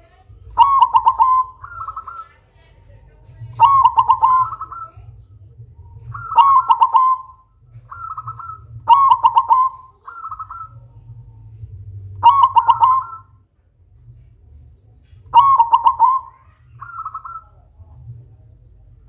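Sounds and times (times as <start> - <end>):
dove cooing: 0.3 - 13.4, 15.3 - 17.8.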